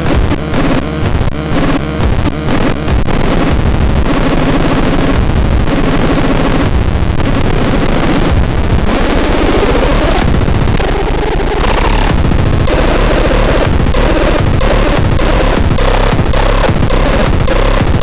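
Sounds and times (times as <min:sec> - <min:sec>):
noisy experimental synthesizer: 0:00.0 - 0:18.0.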